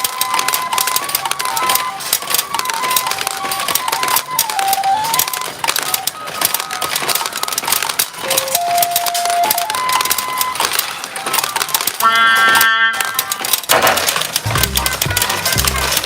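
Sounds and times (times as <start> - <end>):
steel balls clattering: 0.0 - 16.0
beeping electronic tune: 14.5 - 16.0.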